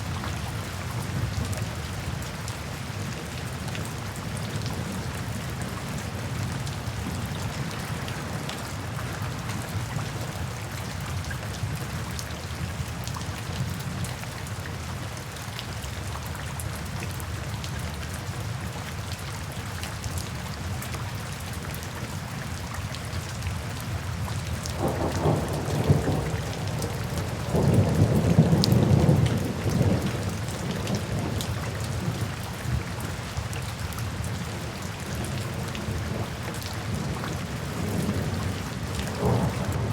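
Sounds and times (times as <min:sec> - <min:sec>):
steady rain falling: 0:00.0 - 0:39.9
low rolls of thunder: 0:24.8 - 0:31.4, 0:37.8 - 0:39.9.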